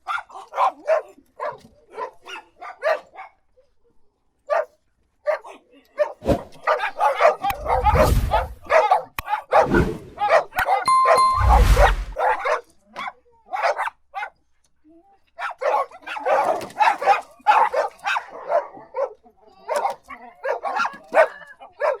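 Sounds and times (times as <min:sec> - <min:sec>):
dogs barking: 0:00.1 - 0:03.4, 0:06.7 - 0:10.5, 0:15.4 - 0:22.0
short steady beep: 0:10.9 - 0:12.2.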